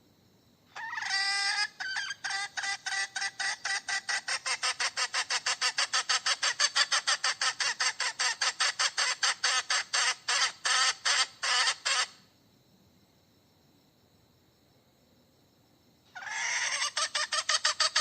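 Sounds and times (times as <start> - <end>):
hen cackling: 0.7 - 12.2, 16.1 - 18.0.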